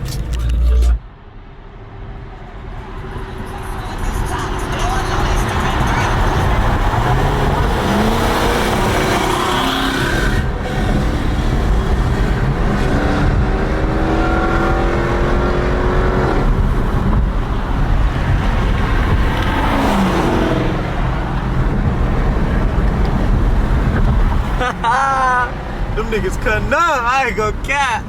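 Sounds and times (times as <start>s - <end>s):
low rumble: 0.0s - 3.8s
car engine accelerating hard: 4.4s - 26.0s.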